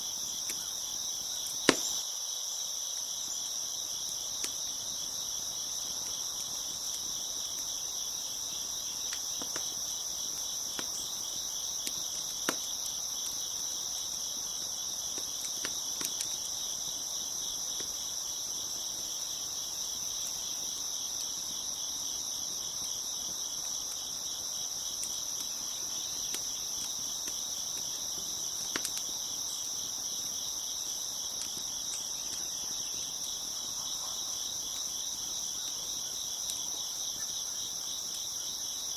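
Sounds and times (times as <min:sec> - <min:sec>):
crickets chirping: 0:00.0 - 0:38.9
wood fire crackling: 0:00.1 - 0:38.7.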